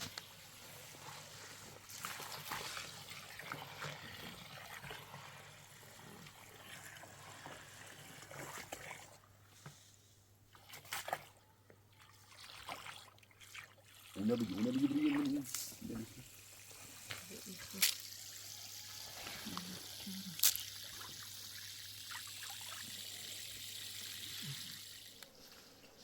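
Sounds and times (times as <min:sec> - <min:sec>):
water trickling and sloshing: 0:00.0 - 0:26.0
small splashes and knocks: 0:01.9 - 0:05.2, 0:10.5 - 0:14.1.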